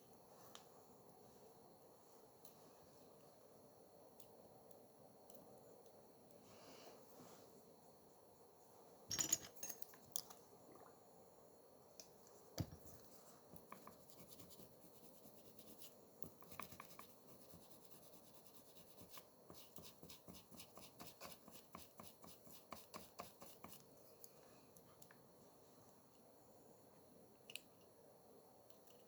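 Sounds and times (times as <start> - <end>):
faint tool scratching: 12.8 - 24.4.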